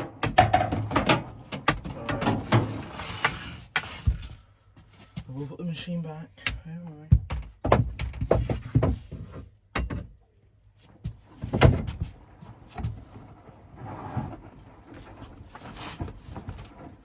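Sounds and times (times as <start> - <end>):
washing machine scraping: 0.0 - 4.3, 12.0 - 17.0.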